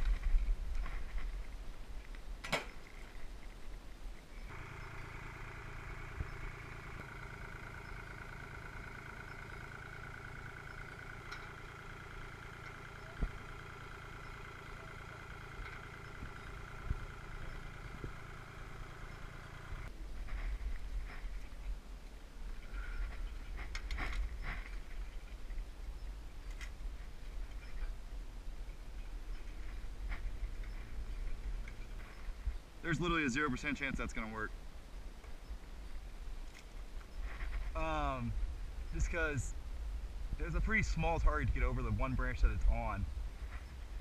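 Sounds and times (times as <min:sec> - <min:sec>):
drone motors humming: 0:04.3 - 0:21.6, 0:28.5 - 0:34.4, 0:35.1 - 0:44.0.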